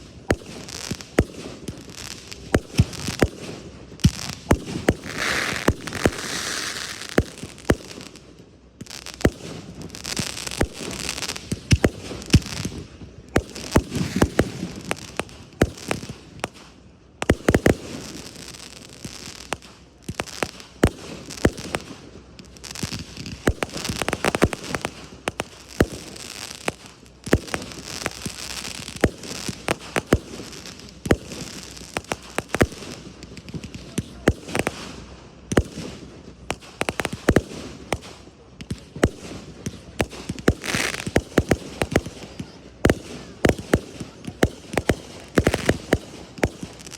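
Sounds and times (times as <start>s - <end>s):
fireworks bangs: 0.0s - 8.2s, 8.8s - 46.9s
fireworks crackling and hissing: 0.0s - 46.9s.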